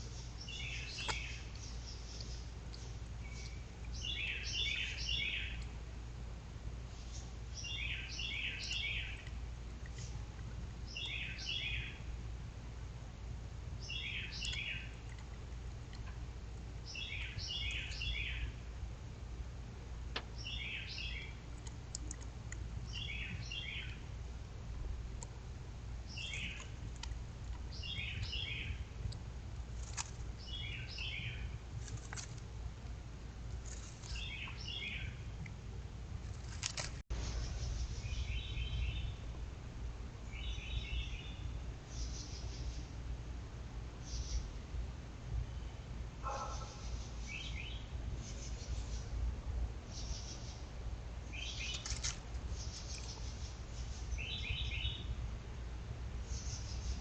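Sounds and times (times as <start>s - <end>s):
small bird chirping: 0.0s - 5.8s, 7.0s - 10.2s, 10.9s - 12.0s, 13.8s - 15.3s, 16.8s - 18.6s, 20.4s - 24.1s, 26.1s - 27.1s, 27.7s - 29.2s, 33.6s - 35.4s, 49.9s - 50.7s, 51.3s - 55.1s, 56.2s - 57.0s
steady low hum: 0.0s - 57.0s.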